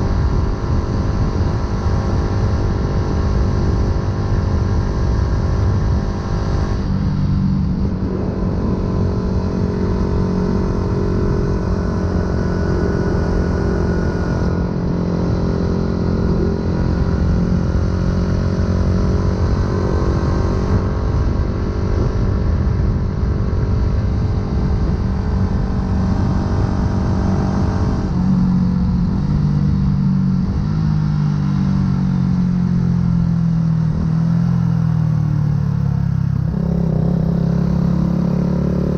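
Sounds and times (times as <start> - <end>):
wind rush: 0.0 - 30.7
motorcycle engine while riding: 0.0 - 38.9.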